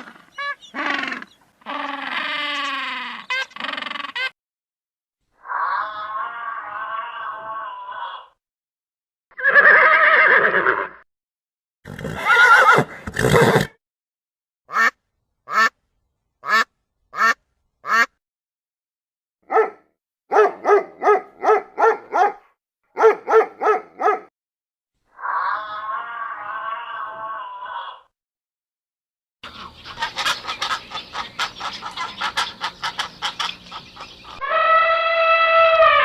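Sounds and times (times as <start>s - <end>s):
animal calls: 0.0s - 4.3s, 25.1s - 28.1s, 29.4s - 36.0s.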